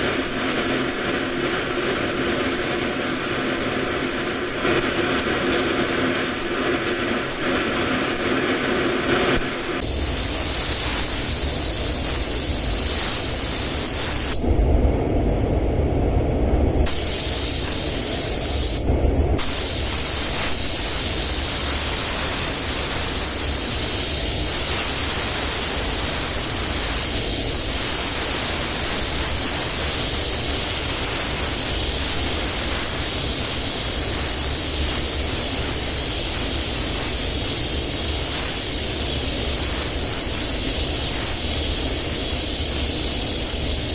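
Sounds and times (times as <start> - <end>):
paint spray gun hissing: 9.4 - 14.4, 16.9 - 43.9
low rumble: 14.4 - 16.9.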